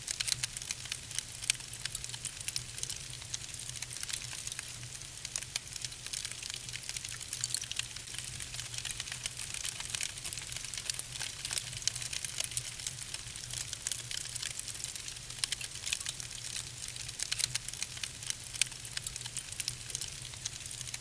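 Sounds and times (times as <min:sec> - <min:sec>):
logs crackling in fireplace: 0:00.0 - 0:21.0.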